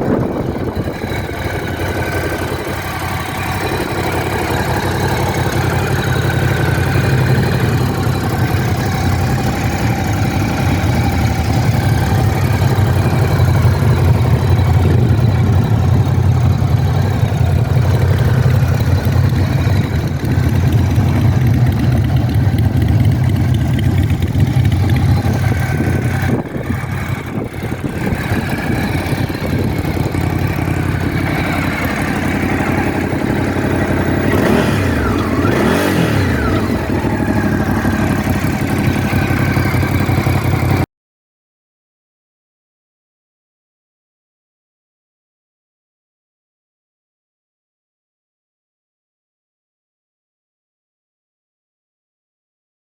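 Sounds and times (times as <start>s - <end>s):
motorcycle engine idling: 0.0s - 40.8s.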